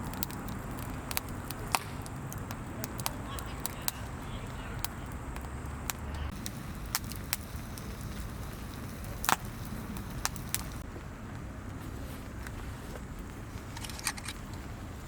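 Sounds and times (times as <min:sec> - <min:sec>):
sharp fire pops: 0:00.0 - 0:10.9
campfire crackling: 0:00.0 - 0:15.0.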